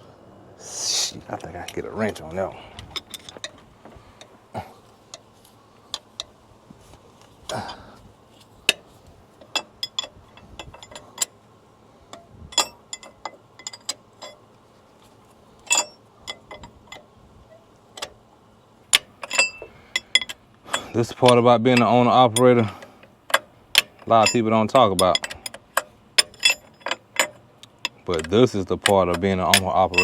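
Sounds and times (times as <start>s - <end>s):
wrench clicking on bolts: 15.7s - 17.0s, 18.9s - 30.0s.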